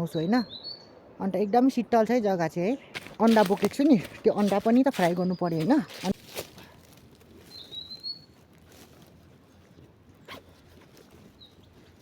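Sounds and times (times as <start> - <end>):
soft rustling of gear: 3.0 - 12.0.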